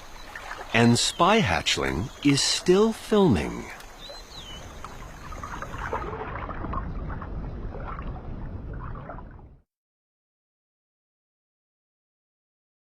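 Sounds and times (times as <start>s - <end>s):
water sloshing and gurgling: 0.0s - 9.6s
water splashing: 0.0s - 9.6s.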